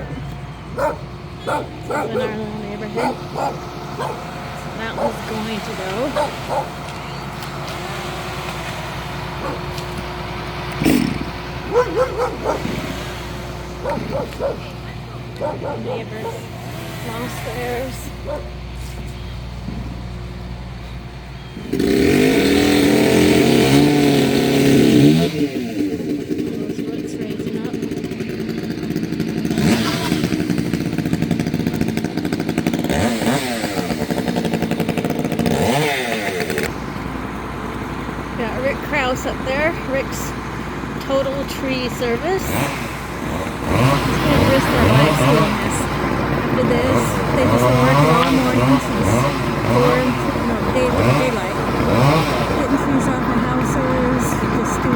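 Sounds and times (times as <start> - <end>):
chainsaw throttle revs: 0.0 - 18.8, 21.6 - 36.8, 37.4 - 54.9
engine idling: 0.0 - 54.9
dog yelping: 0.7 - 4.3, 6.1 - 6.8, 9.4 - 9.8, 11.6 - 12.8, 13.8 - 14.7, 15.4 - 16.6, 17.3 - 18.6
dog barking: 0.8 - 2.4, 3.0 - 4.3, 6.1 - 6.8, 9.4 - 9.7, 11.7 - 12.8, 13.8 - 14.7, 15.4 - 16.5, 18.2 - 18.6.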